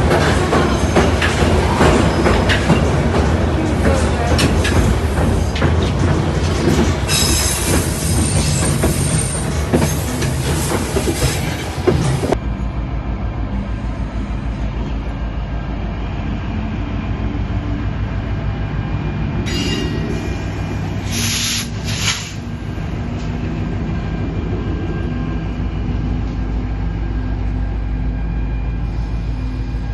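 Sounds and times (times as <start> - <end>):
wheels squealing against rails: 0.0 - 12.4, 19.4 - 22.5
train running on rails: 0.0 - 29.9.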